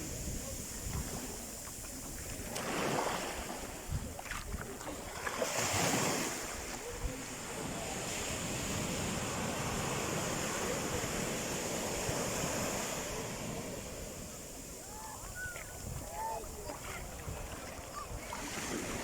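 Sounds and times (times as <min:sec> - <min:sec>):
sea waves breaking: 0:00.0 - 0:19.0.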